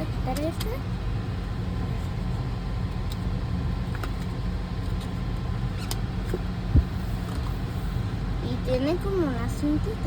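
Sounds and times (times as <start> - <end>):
low background rumble: 0.0 - 10.0
short low thump: 6.7 - 7.0.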